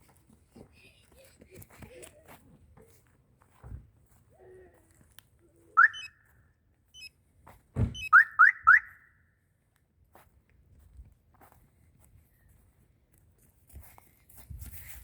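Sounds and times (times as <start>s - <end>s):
car alarm chirps: 5.8s - 6.2s, 7.9s - 9.2s
heavy thump: 7.8s - 8.0s.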